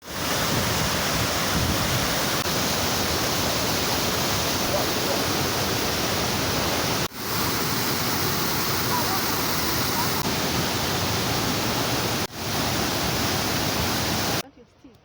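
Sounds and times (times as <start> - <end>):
waterfall roaring: 0.0 - 14.4.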